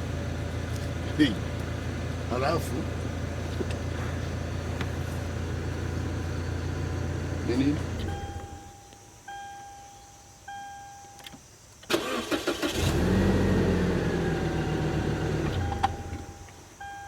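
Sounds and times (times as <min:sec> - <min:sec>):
car engine running: 0:00.0 - 0:08.7, 0:12.8 - 0:16.6
car starter cranking: 0:00.7 - 0:08.7, 0:11.8 - 0:16.6
car warning chime beeping: 0:06.9 - 0:11.3, 0:15.4 - 0:17.0.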